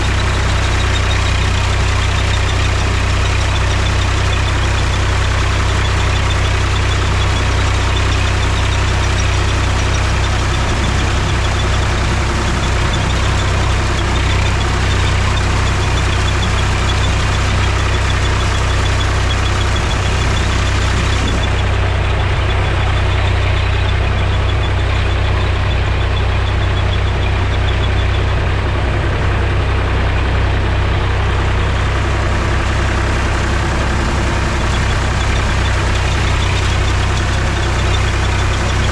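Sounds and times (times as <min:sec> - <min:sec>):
tractor diesel engine droning: 0:00.0 - 0:38.9.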